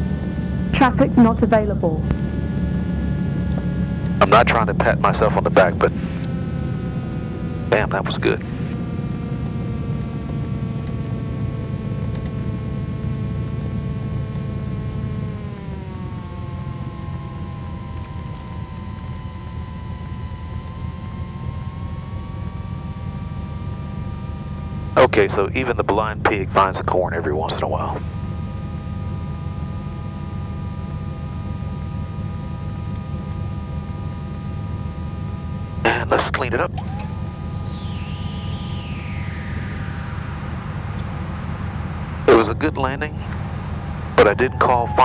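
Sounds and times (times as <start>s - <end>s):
airplane engines and propellers drone: 0.0s - 45.0s.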